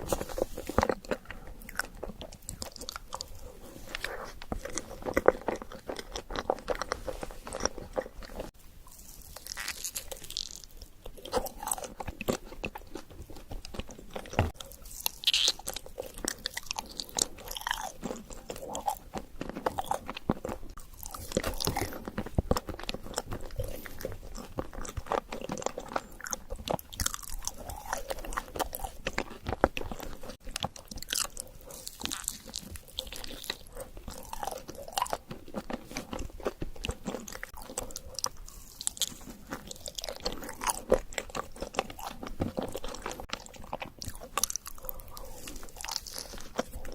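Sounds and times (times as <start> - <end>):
crunching and chewing: 0.0 - 46.9.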